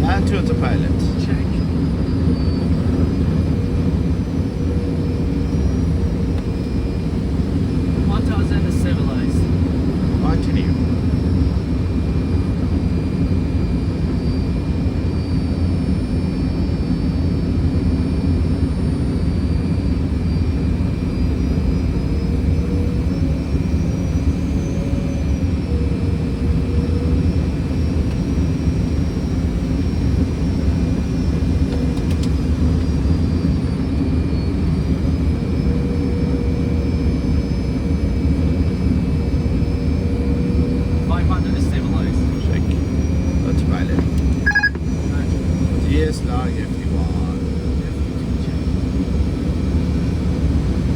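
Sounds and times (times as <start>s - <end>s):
airflow and jet engine rush: 0.0s - 50.9s.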